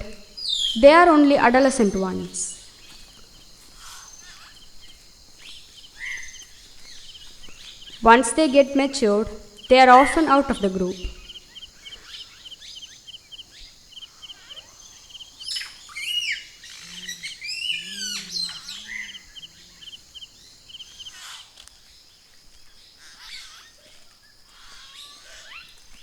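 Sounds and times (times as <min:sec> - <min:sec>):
sweeping warbling bird calls: 0:00.0 - 0:21.4
faint low hoots: 0:14.1 - 0:21.0.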